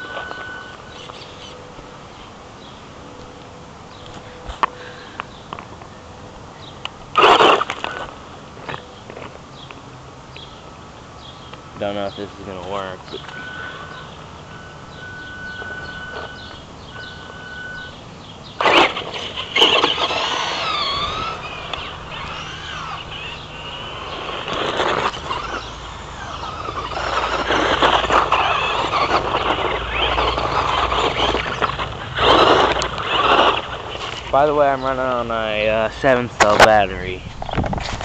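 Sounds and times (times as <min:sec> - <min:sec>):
rc truck electric motor whine: 0:00.0 - 0:01.8, 0:07.1 - 0:08.2, 0:13.3 - 0:36.2
rough driving noise: 0:00.0 - 0:06.0, 0:06.8 - 0:38.0.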